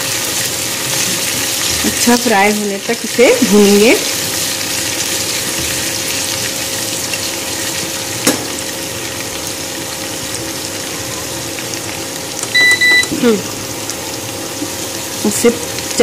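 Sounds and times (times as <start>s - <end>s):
hot oil sizzling in a pan: 0.0s - 16.0s.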